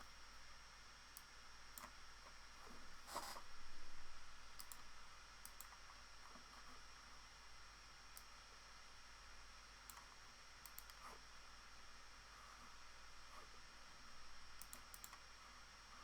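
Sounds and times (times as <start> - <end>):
computer mouse clicking: 4.6 - 4.8, 5.4 - 5.8, 9.9 - 11.1, 14.6 - 15.2.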